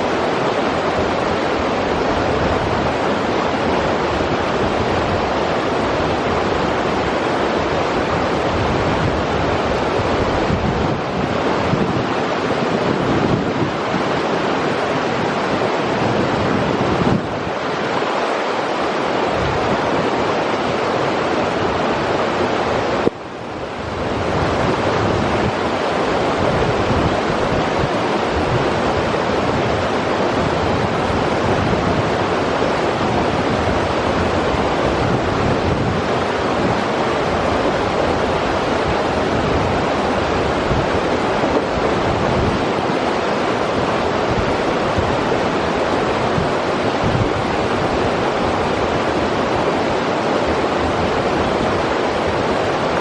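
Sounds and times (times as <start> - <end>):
river water rushing over rocks: 0.0 - 53.0.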